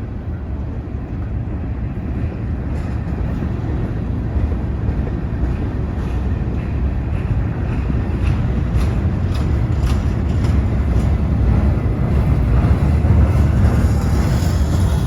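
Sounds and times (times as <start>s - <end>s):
freight train rumble: 0.0s - 15.0s
wind on microphone: 0.0s - 15.0s
wheels clicking over rail joints: 5.6s - 15.0s.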